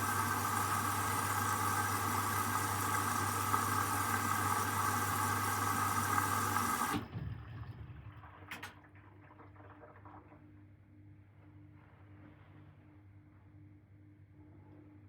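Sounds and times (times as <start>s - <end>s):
drain pump humming and whining: 0.0s - 8.8s.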